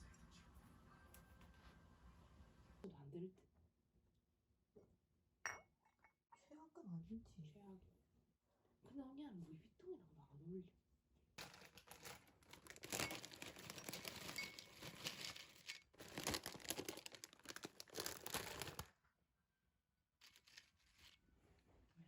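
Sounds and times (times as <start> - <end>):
packaging crinkling and rustling: 11.4 - 18.9, 20.2 - 21.2
packaging tearing: 11.4 - 18.9, 20.2 - 21.2.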